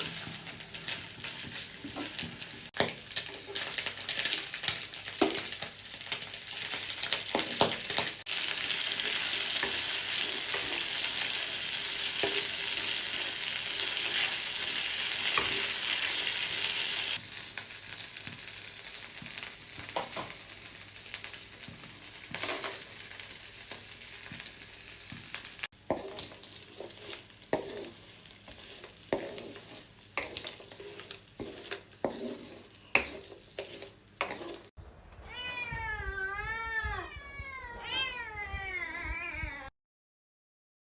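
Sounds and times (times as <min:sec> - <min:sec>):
spatula scraping a pan: 0:00.0 - 0:08.1, 0:21.6 - 0:23.0, 0:25.8 - 0:34.7
food sizzling in a pan: 0:00.0 - 0:34.8.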